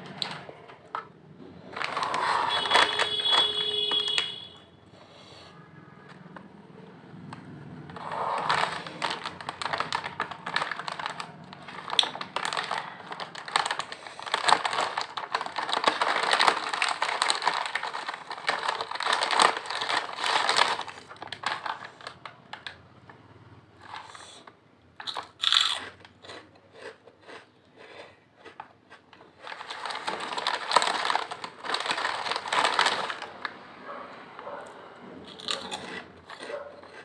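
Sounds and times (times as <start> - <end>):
potato chips crunching: 1.6 - 4.2, 8.0 - 22.7, 25.0 - 33.5, 35.3 - 37.0.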